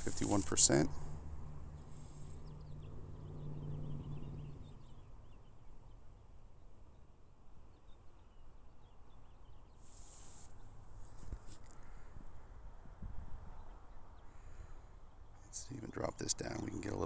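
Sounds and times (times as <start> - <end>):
high bird chirps: 2.0 - 6.1.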